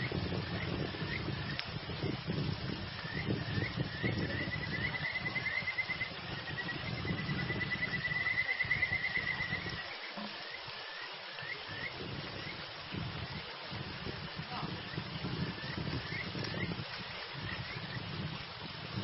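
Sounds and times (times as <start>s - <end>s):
frog chirping and trilling: 3.0s - 12.6s, 14.8s - 16.8s, 17.4s - 18.0s.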